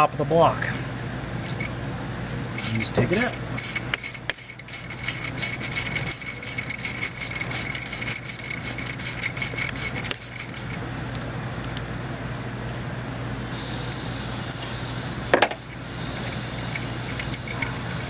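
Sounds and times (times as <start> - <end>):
steady low hum: 0.0 - 18.0
rapid metallic clicking: 2.6 - 10.8.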